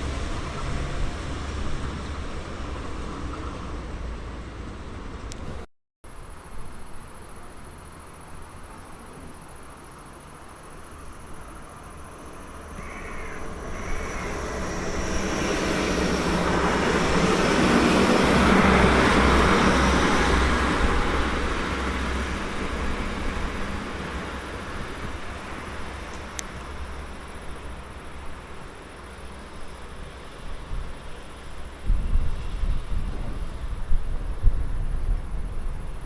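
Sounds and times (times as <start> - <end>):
train passing: 0.0 - 5.6, 7.6 - 36.0
bird calling: 12.7 - 14.9.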